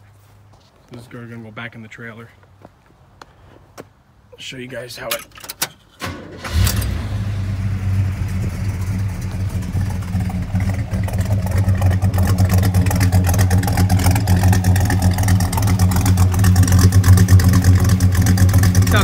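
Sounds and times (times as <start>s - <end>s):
car engine idling: 6.4s - 19.0s.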